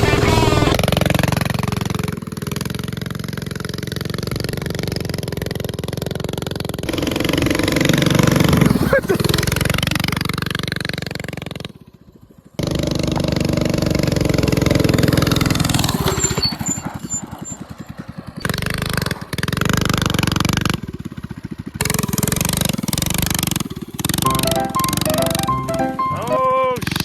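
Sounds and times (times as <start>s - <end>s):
small engine revving: 0.0s - 25.9s.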